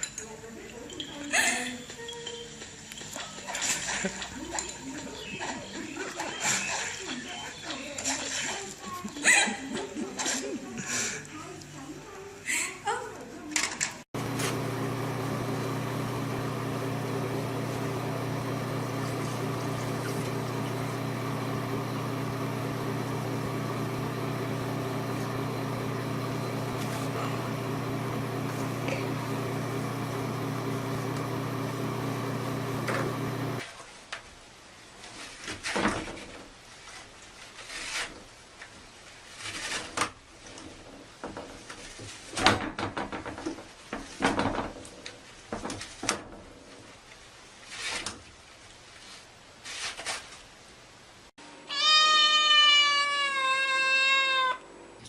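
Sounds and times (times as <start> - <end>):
steady hum: 14.2 - 33.6
cat meowing: 51.7 - 54.6.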